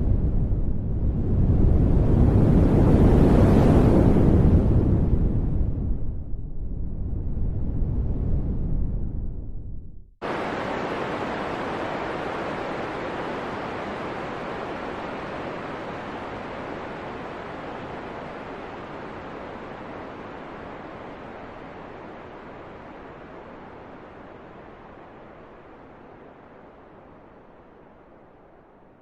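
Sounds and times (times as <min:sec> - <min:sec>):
wind blowing: 0:00.0 - 0:29.0.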